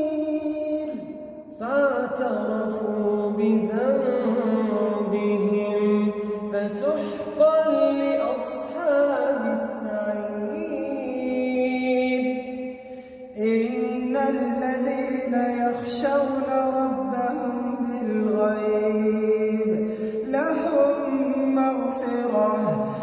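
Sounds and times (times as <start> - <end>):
person chanting melodically: 0.0 - 23.0.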